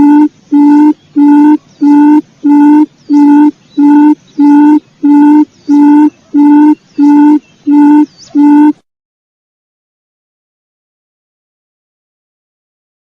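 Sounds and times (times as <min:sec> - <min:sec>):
quail lure call hooting: 0:00.0 - 0:08.8.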